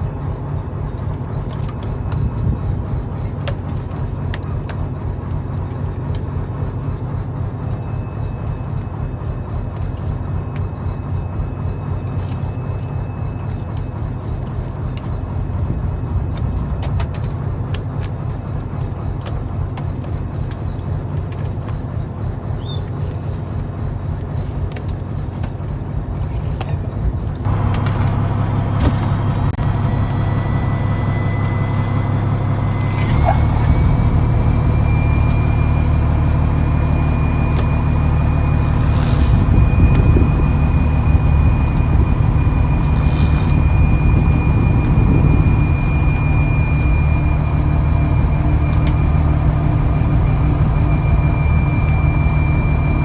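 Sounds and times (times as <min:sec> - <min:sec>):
boat engine drone: 0:00.0 - 0:53.0
high whine rising in pitch: 0:27.5 - 0:53.0.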